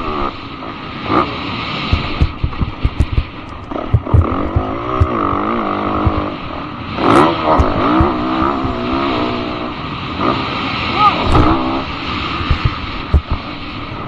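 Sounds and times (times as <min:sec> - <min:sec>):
dirt bike engine revving: 0:01.1 - 0:13.6
low thumps on microphone: 0:01.9 - 0:06.6, 0:07.5 - 0:09.2, 0:12.4 - 0:13.5.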